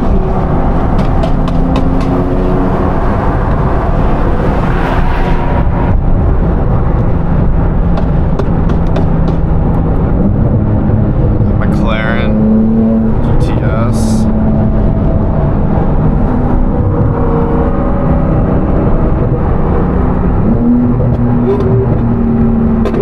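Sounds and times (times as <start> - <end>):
road noise rumble: 0.0 - 23.0
sports car engine: 0.0 - 23.0.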